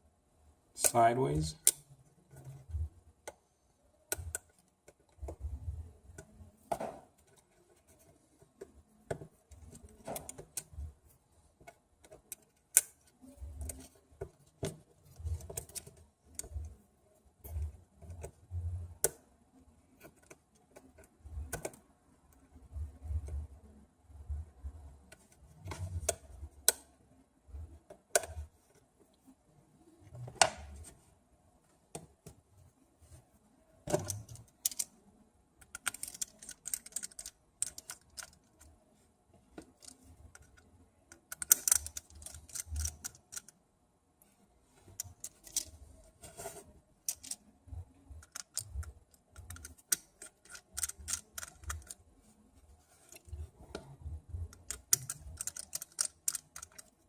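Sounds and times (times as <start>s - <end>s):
tools clicking on phone: 39.6s - 43.6s, 48.2s - 52.0s, 54.5s - 57.0s.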